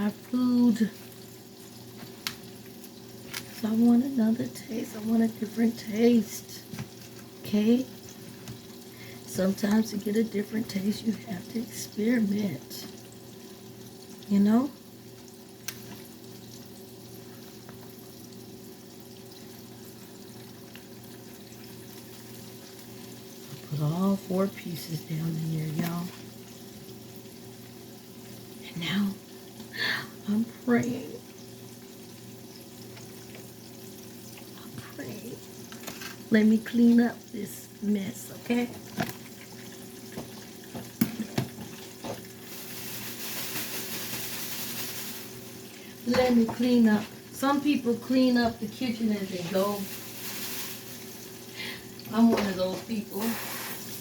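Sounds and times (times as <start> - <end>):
fish sizzling in hot oil: 0.0 - 54.0
sink tap running: 0.0 - 54.0.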